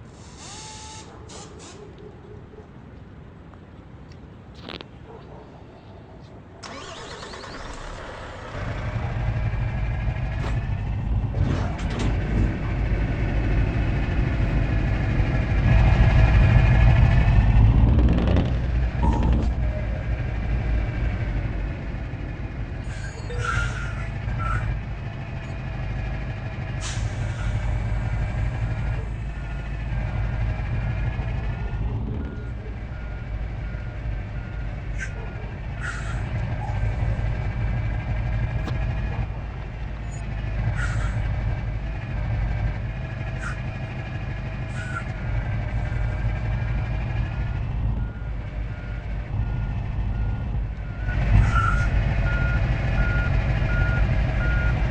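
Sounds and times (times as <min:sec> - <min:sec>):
reversing alarm beeping: 0:00.2 - 0:01.1, 0:18.9 - 0:22.1, 0:44.7 - 0:54.8
truck engine running: 0:06.6 - 0:54.9.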